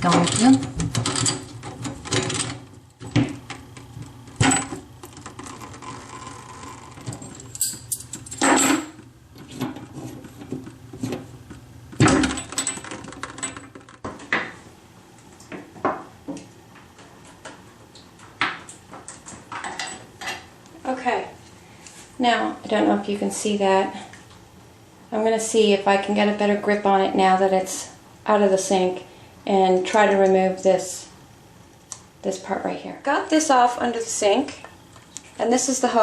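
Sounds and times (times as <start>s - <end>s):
metal tools clinking: 7.3s - 8.9s.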